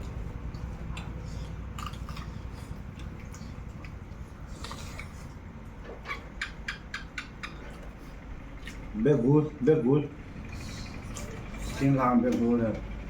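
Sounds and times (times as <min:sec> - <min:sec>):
chewing: 0:00.0 - 0:08.9, 0:10.4 - 0:11.9.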